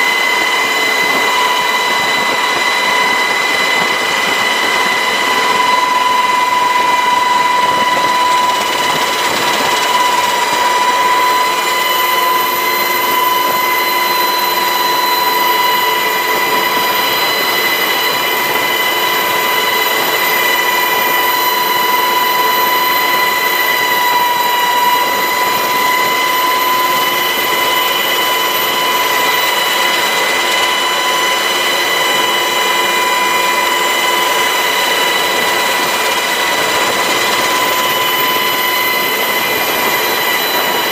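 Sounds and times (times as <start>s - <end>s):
helicopter turbine whine: 0.0s - 40.9s
rotor and engine rush: 0.0s - 40.9s.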